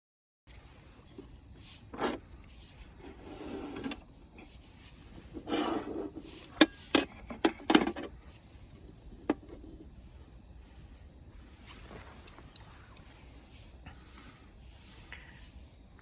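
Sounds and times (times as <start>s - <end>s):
hands scraping hard objects: 5.2s - 6.6s.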